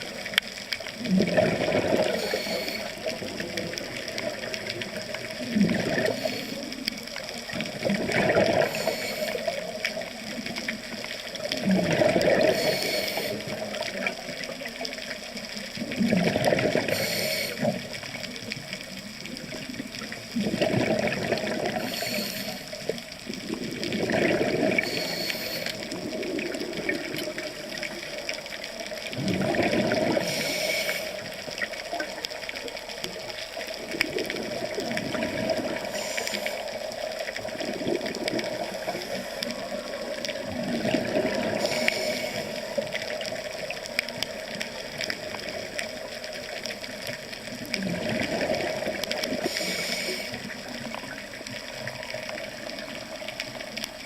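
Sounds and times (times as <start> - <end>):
underwater wash of water: 0.0 - 54.0
exhaled bubbles bursting: 0.9 - 6.8, 7.4 - 10.6, 11.4 - 12.8, 15.8 - 18.0, 19.2 - 22.1, 22.8 - 28.2, 29.0 - 32.8, 33.8 - 49.8
diver breathing through regulator: 1.9 - 3.1, 8.6 - 9.5, 12.3 - 13.5, 16.8 - 17.8, 21.6 - 22.8, 24.7 - 25.9, 29.9 - 31.2, 35.8 - 36.8, 41.4 - 42.8, 49.3 - 50.6.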